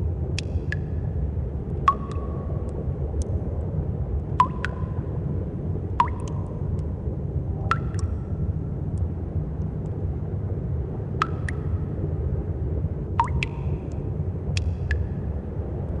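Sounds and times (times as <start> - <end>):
low rumble: 0.0 - 16.0
water drops plinking into pool: 0.3 - 1.0, 1.8 - 3.4, 4.3 - 5.2, 6.0 - 6.9, 7.7 - 8.3, 11.2 - 11.9, 13.2 - 15.1.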